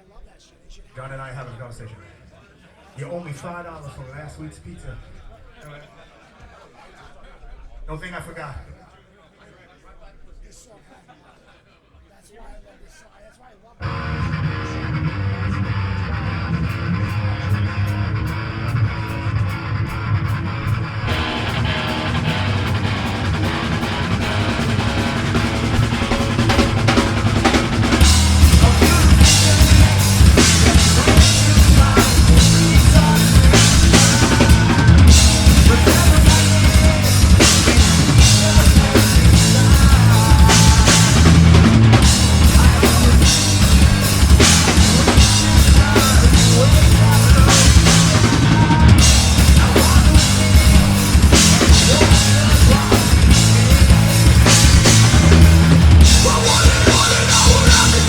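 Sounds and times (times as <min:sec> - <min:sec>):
live metal band playing: 0:13.8 - 0:58.0.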